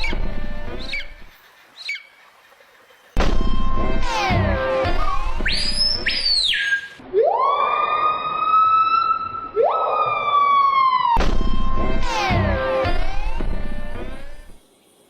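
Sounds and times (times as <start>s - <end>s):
siren-like wailing: 3.2s - 6.2s, 7.0s - 14.6s.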